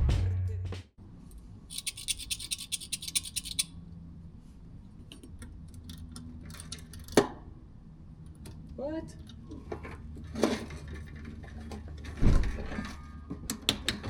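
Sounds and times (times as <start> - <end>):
rapid scratching strokes: 1.7 - 3.7.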